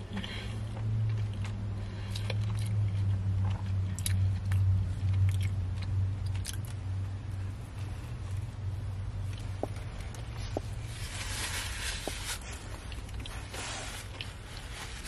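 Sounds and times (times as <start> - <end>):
low hum inside a car: 0.0 - 15.0
chewing and lip-smacking: 1.0 - 6.9, 12.7 - 13.5.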